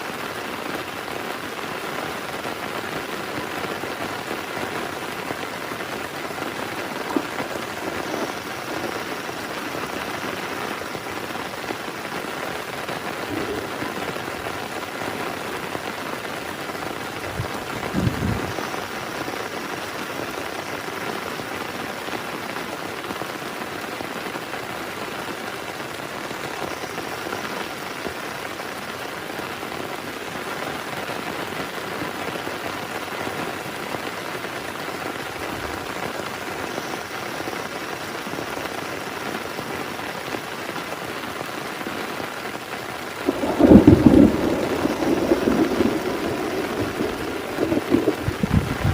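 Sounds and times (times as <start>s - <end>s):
heavy rain: 0.0s - 48.9s.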